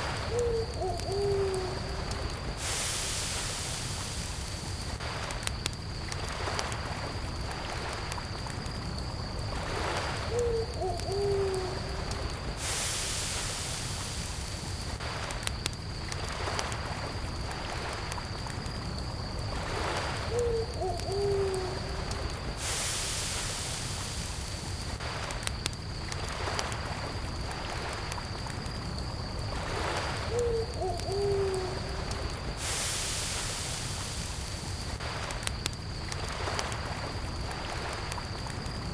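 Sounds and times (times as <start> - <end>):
campfire crackling: 0.0 - 38.9
crickets chirring: 0.0 - 38.9
owl hooting: 0.3 - 2.0, 10.3 - 12.0, 20.3 - 22.0, 30.3 - 32.0.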